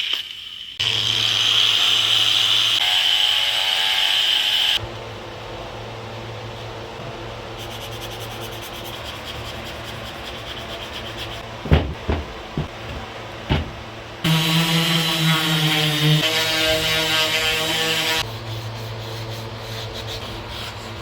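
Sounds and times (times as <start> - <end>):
sharp knocks: 11.6 - 13.9.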